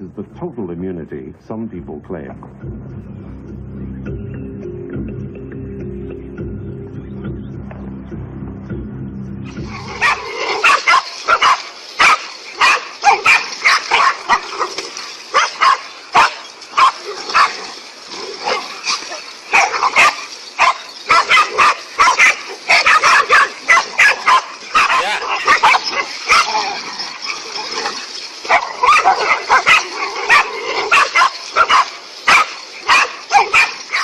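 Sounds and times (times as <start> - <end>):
music: 0.1 - 10.4
dog-like barking and yipping: 9.7 - 34.0.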